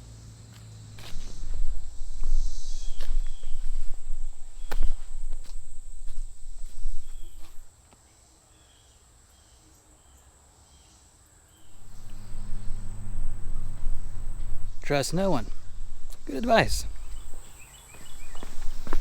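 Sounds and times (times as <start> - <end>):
insects droning: 0.0 - 19.0
footsteps crunching on rocks: 0.9 - 7.7, 11.7 - 19.0
faint chirps: 1.0 - 7.7, 11.6 - 19.0
low steady hum: 11.6 - 19.0.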